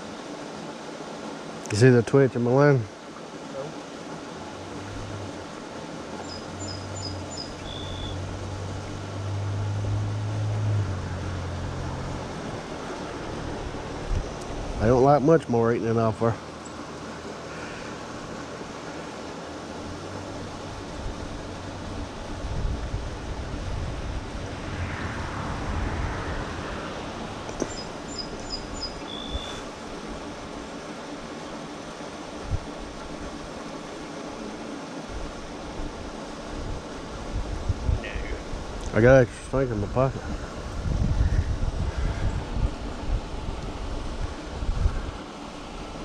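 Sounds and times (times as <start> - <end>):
passing vehicle engine hum: 4.5 - 5.8, 6.5 - 15.4, 19.6 - 29.8
bird chirping: 6.2 - 8.2, 27.6 - 29.6
wind rumbling on microphone: 6.5 - 15.2, 19.7 - 30.5, 32.3 - 33.4, 35.0 - 46.0.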